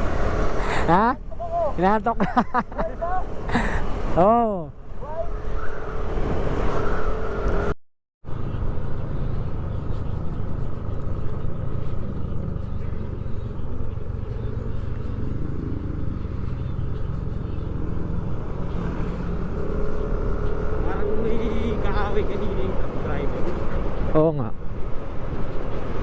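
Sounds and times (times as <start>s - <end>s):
motorcycle engine rumble: 6.9s - 24.0s.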